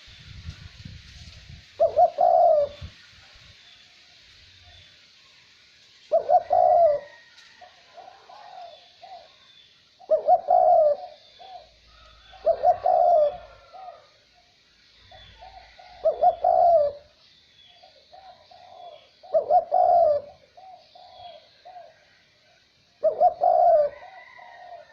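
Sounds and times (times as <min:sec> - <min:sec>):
light wind: 0:00.0 - 0:24.9
dove cooing: 0:01.8 - 0:03.0, 0:06.1 - 0:14.2, 0:15.1 - 0:17.2, 0:17.8 - 0:24.9.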